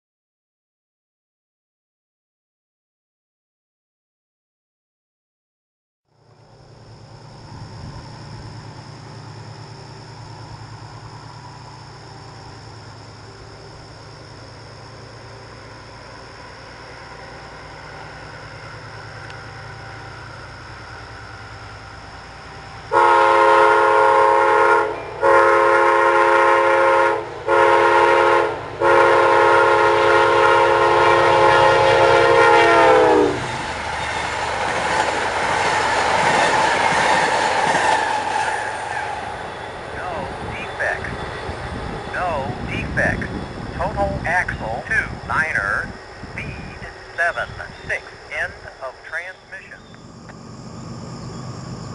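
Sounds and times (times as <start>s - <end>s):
train engine rumble: 6.1s - 51.9s
rush of passing train: 6.2s - 51.9s
locomotive air horn: 22.9s - 33.5s.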